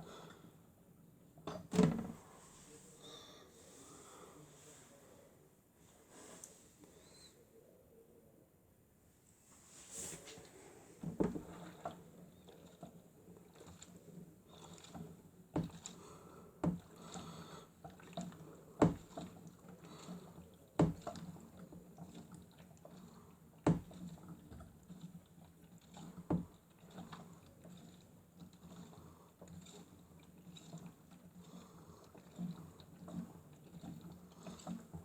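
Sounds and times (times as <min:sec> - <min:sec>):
water sloshing: 0:11.0 - 0:35.0
toy washing machine motor hum: 0:11.2 - 0:35.0.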